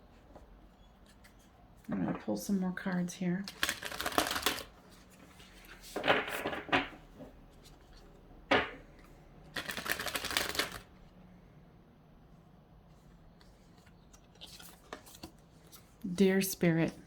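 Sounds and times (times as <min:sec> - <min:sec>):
cards being shuffled: 0:03.5 - 0:06.5, 0:09.0 - 0:10.9.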